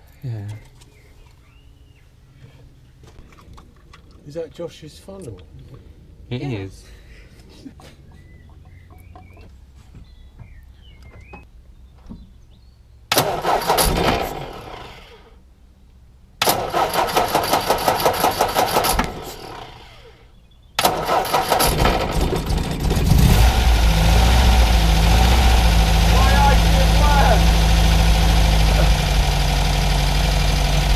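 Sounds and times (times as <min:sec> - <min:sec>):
engine cranking on starter: 0:13.1 - 0:15.3, 0:16.4 - 0:20.2, 0:20.8 - 0:30.9
car engine running: 0:20.8 - 0:30.9.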